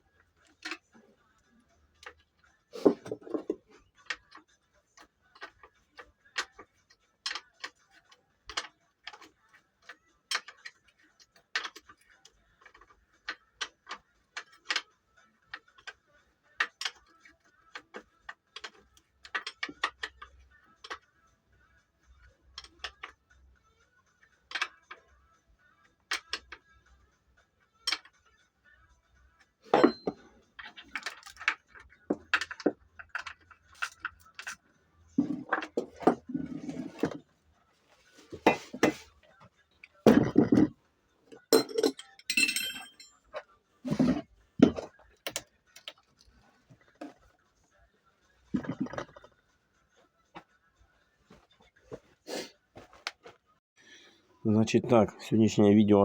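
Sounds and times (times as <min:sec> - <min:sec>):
tools clicking on metal: 0:03.2 - 0:16.0, 0:16.6 - 0:21.0, 0:27.8 - 0:28.1, 0:29.7 - 0:37.2.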